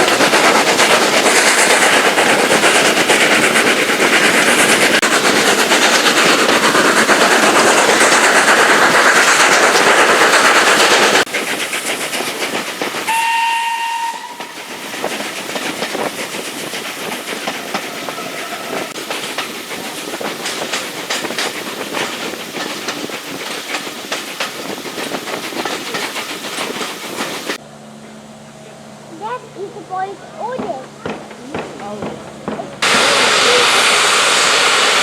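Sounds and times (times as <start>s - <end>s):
train wheels clattering over rail joints: 0.0s - 27.6s, 30.4s - 35.0s
steam whistle: 13.1s - 14.6s.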